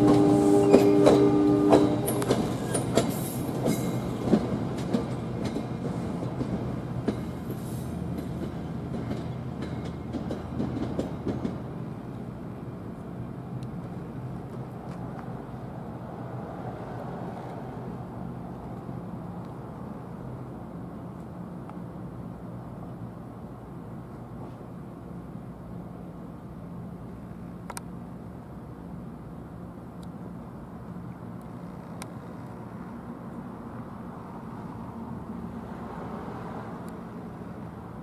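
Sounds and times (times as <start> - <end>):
train wheels clicking over rail joints: 0.0 - 11.7.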